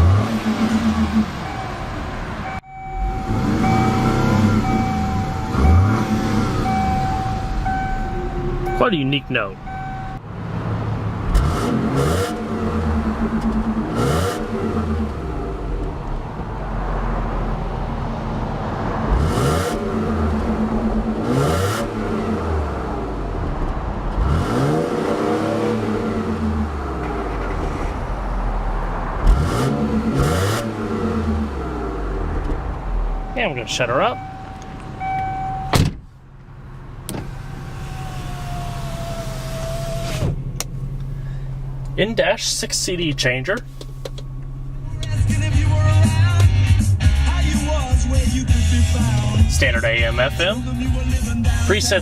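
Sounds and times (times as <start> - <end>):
car engine idling: 0.0 - 52.0
engine throttle blip: 2.4 - 10.2
window glass thump: 35.7 - 36.1
power window motor whine: 37.1 - 40.4.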